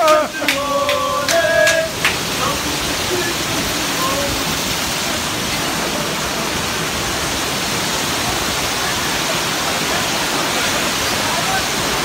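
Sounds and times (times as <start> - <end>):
torrential rain splashing on pavement: 0.0 - 12.0.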